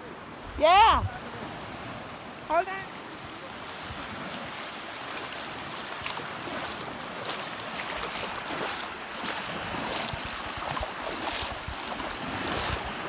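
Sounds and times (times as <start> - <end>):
wind on microphone: 0.4 - 2.0, 9.4 - 13.0
sea water sloshing and splashing: 3.6 - 13.0.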